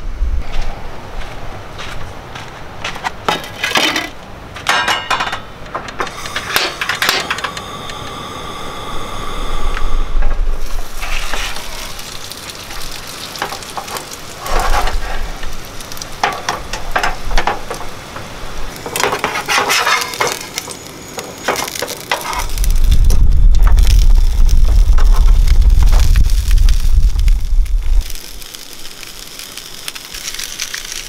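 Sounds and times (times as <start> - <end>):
loud low rumble: 8.3 - 12.1, 22.4 - 28.2
schnitzel sizzling in a frying pan: 10.6 - 31.0.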